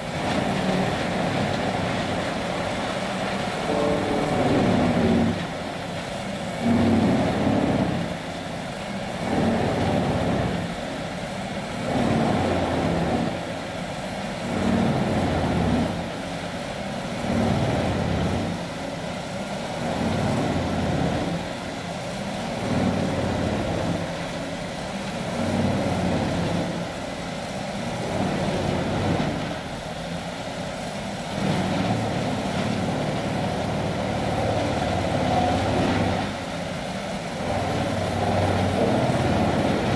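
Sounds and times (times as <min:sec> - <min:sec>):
wood grinder roaring: 0:00.0 - 0:08.3, 0:09.1 - 0:10.9, 0:11.8 - 0:13.7, 0:14.3 - 0:16.2, 0:17.2 - 0:18.6, 0:19.8 - 0:21.6, 0:22.5 - 0:24.2, 0:25.2 - 0:26.9, 0:27.8 - 0:29.6, 0:31.3 - 0:39.9.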